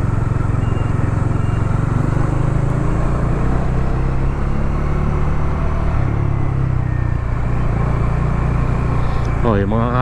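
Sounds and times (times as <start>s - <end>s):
motorcycle engine running: 0.0s - 3.4s.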